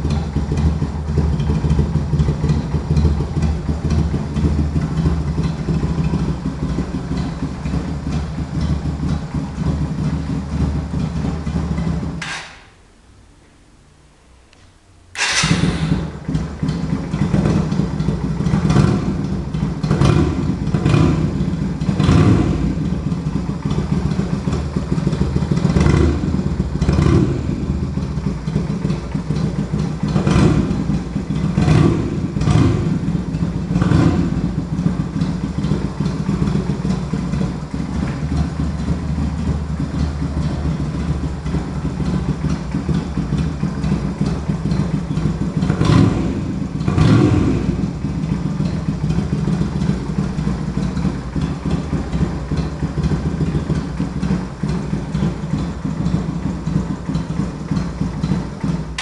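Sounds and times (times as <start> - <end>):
motorcycle engine revving and idling: 0.0 - 12.8, 15.0 - 59.0.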